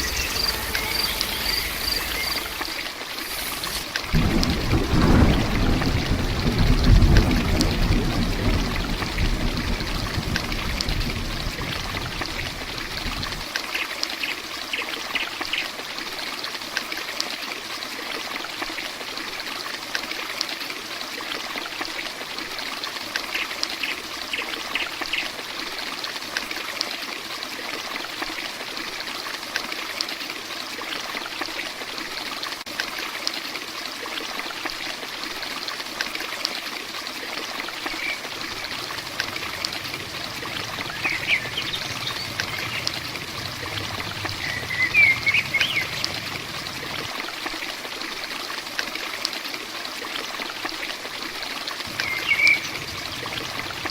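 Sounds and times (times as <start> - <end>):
low rumble: 0.0 - 2.8, 38.3 - 47.1, 51.9 - 53.9
heavy rain pouring: 0.0 - 13.6, 37.6 - 48.3, 51.8 - 53.9
water trickling: 0.0 - 53.9.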